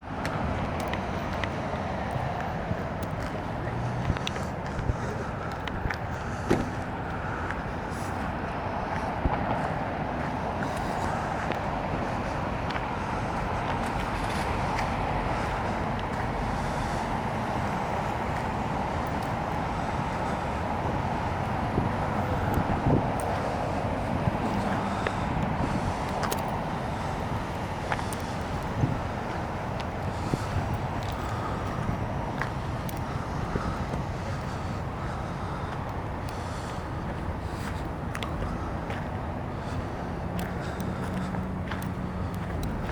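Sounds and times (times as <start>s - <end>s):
road traffic: 0.0s - 42.9s.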